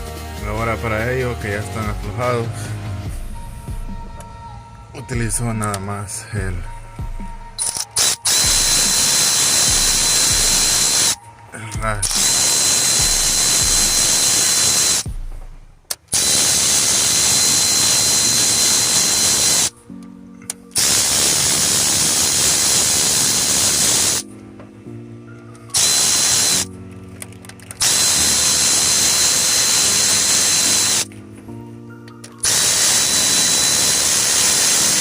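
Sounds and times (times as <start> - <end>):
electric ratchet whirring: 7.6 - 11.2, 12.0 - 15.2, 15.9 - 19.7, 20.7 - 24.2, 25.6 - 26.7, 27.6 - 31.1, 32.2 - 35.0.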